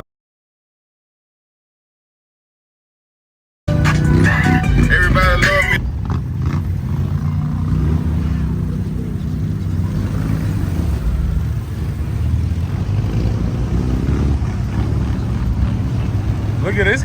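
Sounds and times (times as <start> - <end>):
vehicle engine running: 3.7 - 17.0.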